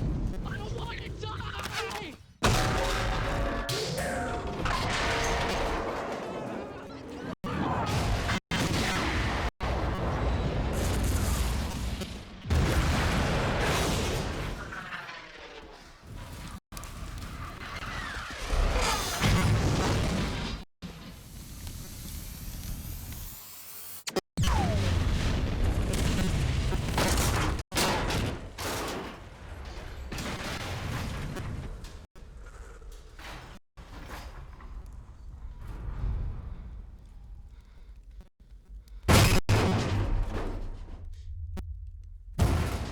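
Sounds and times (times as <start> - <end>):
explosions and crashing wreckage: 2.4 - 21.4, 24.4 - 32.1, 33.2 - 37.5, 39.1 - 42.9
explosion booms: 42.4 - 42.9.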